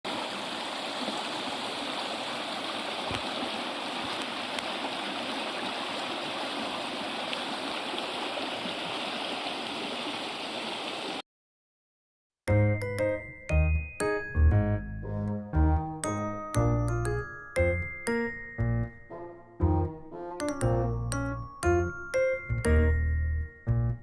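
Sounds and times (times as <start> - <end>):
running water rushing: 0.0 - 11.2
music with chiming notes: 12.5 - 24.0.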